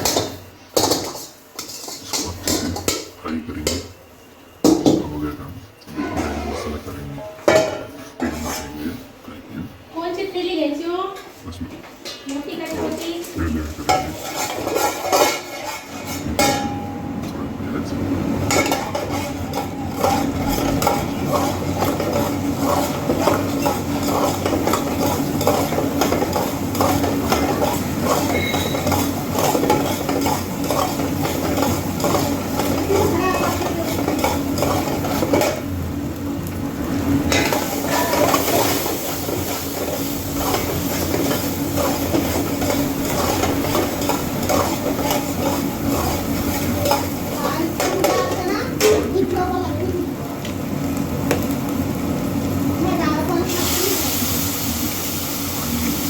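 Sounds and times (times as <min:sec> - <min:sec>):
metal utensil scraping pot: 0:00.0 - 0:02.9, 0:07.5 - 0:08.7, 0:13.9 - 0:16.8, 0:18.4 - 0:35.7, 0:37.2 - 0:49.1
oil sizzling: 0:00.0 - 0:03.2, 0:12.6 - 0:17.0, 0:18.0 - 0:56.0.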